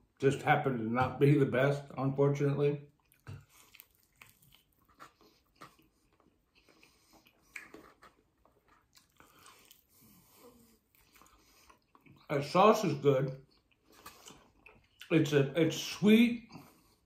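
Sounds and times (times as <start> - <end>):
crunching of crisp skin: 3.0 - 10.0
chewing with wet mouth smacks: 3.0 - 12.3, 13.3 - 15.2.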